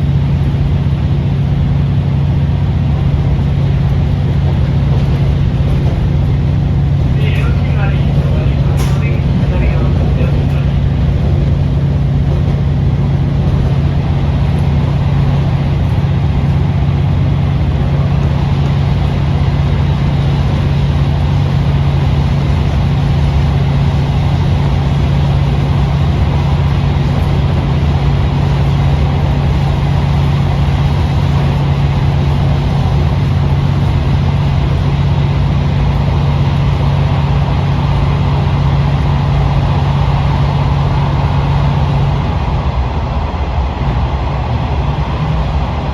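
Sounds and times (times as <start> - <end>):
diesel railcar engine drone: 0.0 - 45.9.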